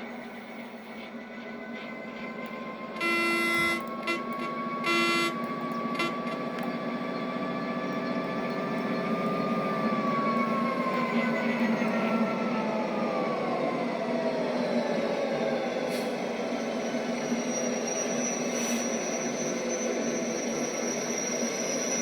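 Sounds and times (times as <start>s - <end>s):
train passing at speed: 0.0s - 22.0s
train horn blasts: 2.8s - 6.8s.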